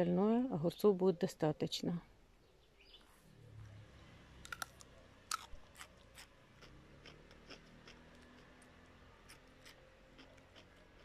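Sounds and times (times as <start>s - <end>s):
person chewing cucumber crunches: 4.4s - 11.0s.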